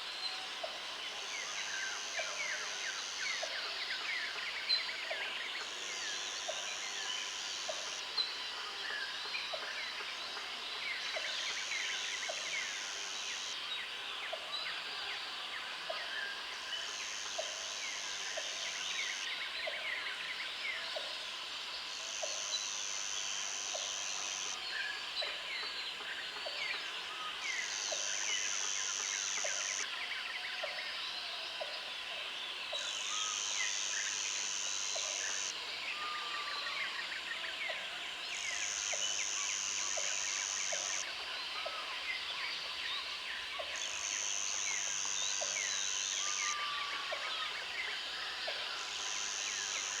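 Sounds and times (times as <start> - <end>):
insect high buzz: 21.9 - 24.6, 27.4 - 29.9, 33.0 - 35.6, 38.3 - 41.1, 43.8 - 50.0.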